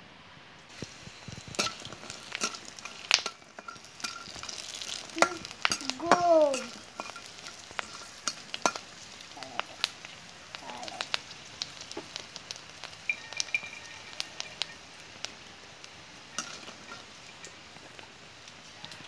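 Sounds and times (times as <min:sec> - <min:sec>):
chips sizzling in hot oil: 0:00.7 - 0:19.0
metal spatula scraping: 0:00.8 - 0:08.9
person crying out: 0:05.2 - 0:06.7, 0:10.6 - 0:11.0.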